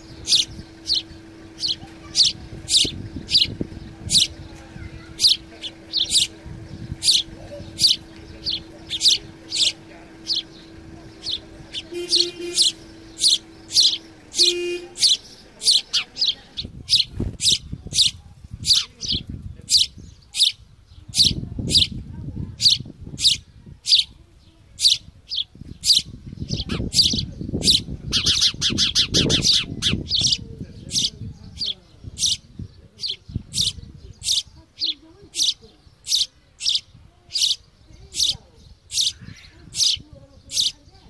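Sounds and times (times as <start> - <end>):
low steady hum: 0.0 - 18.4
small bird chirping: 0.0 - 41.0.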